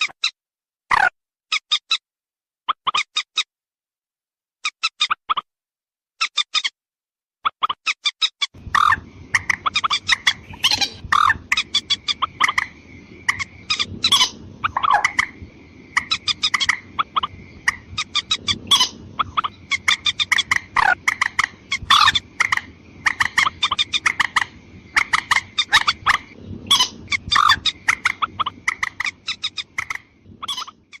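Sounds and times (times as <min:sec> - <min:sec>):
low hiss: 0:08.6 - 0:30.4
rail calls: 0:08.6 - 0:31.0.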